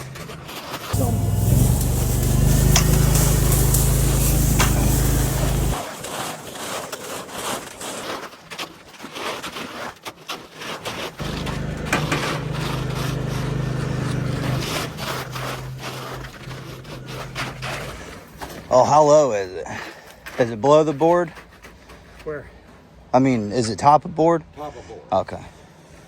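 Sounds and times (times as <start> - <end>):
hand tools scraping wet concrete: 0.0 - 22.3
heavy engine humming: 1.0 - 5.8, 11.2 - 18.6.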